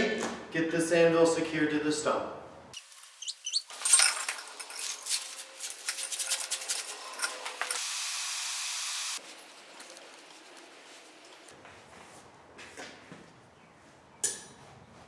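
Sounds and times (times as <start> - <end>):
metal chain clinking: 2.8 - 8.1, 9.2 - 11.5.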